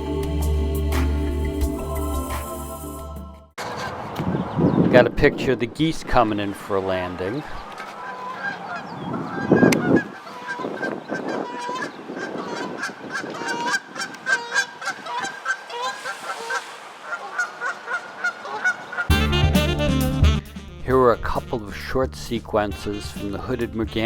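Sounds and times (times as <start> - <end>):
geese honking: 7.2 - 19.3
rush of noise: 15.2 - 19.0.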